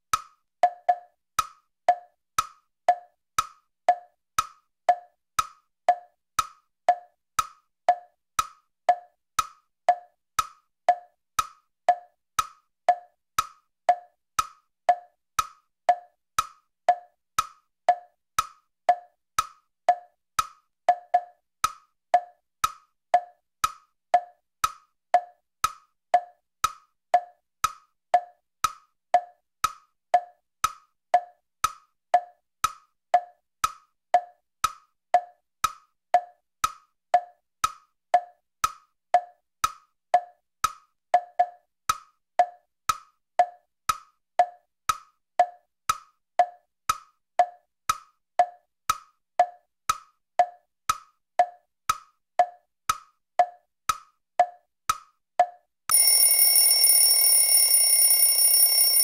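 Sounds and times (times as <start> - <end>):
clock ticking: 0.1 - 36.4, 55.9 - 59.0.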